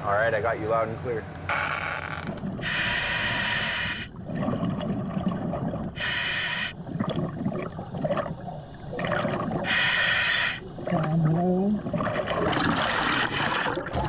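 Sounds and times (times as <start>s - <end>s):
exhale bubbling gurgles: 2.0s - 14.0s
regulator air hiss on inhale: 2.6s - 4.1s, 6.0s - 6.8s, 9.7s - 10.6s.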